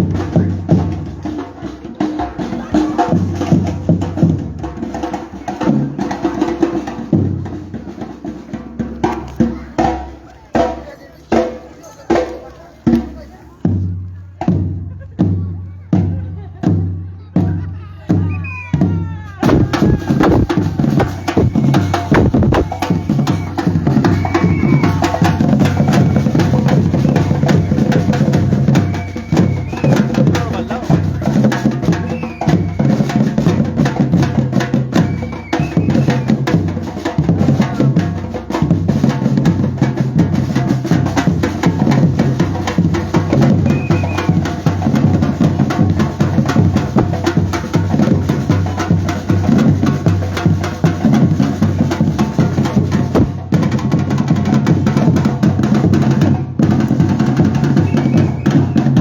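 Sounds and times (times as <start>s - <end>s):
percussion band drumming: 0.0s - 59.0s
deep bass drums: 16.8s - 32.0s, 51.8s - 53.9s.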